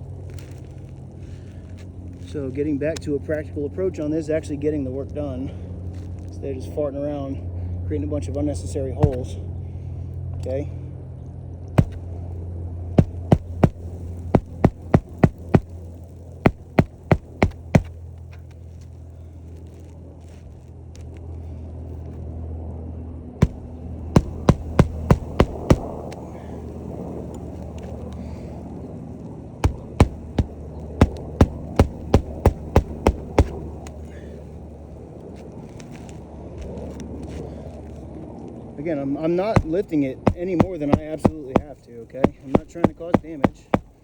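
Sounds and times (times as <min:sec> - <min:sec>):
steady low hum: 0:11.0 - 0:20.2, 0:23.4 - 0:35.6, 0:39.5 - 0:44.0
hammer striking nails: 0:11.8 - 0:12.0, 0:13.0 - 0:15.8, 0:16.5 - 0:17.9, 0:23.4 - 0:26.0, 0:29.6 - 0:33.6, 0:39.6 - 0:44.0.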